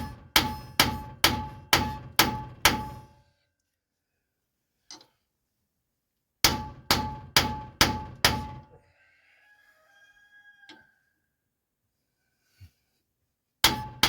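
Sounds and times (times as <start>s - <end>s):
hammer striking metal: 0.0s - 3.2s, 6.4s - 8.6s, 13.6s - 14.0s.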